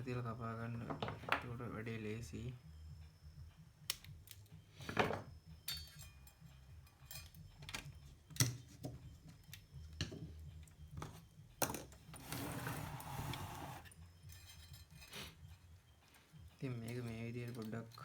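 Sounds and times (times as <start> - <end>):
hand tools clicking on wires: 3.8 - 4.4
scraping or rubbing: 12.2 - 13.9.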